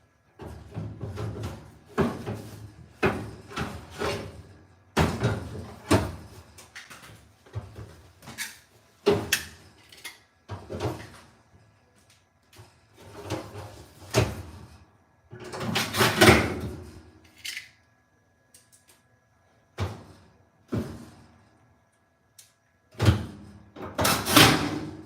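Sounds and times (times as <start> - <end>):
knocks and clunks of dryer parts: 0.3 - 9.7, 10.4 - 11.4, 12.6 - 14.7, 15.3 - 17.0, 22.9 - 25.0
scraping of dryer parts: 0.4 - 11.4, 12.6 - 17.8.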